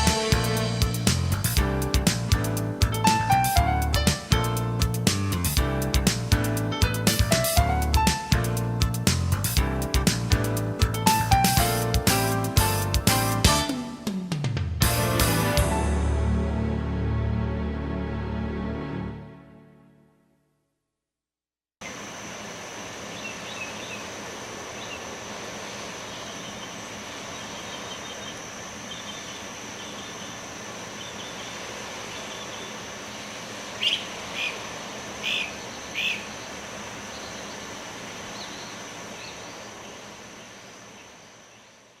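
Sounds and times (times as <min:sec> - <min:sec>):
small birds chirping: 0:23.0 - 0:42.0.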